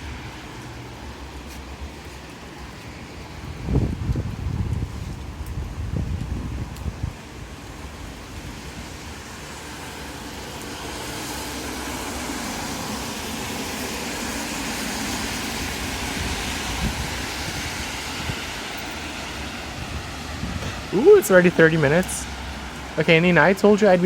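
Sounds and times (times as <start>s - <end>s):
tyres rushing over wet road: 6.6s - 24.0s.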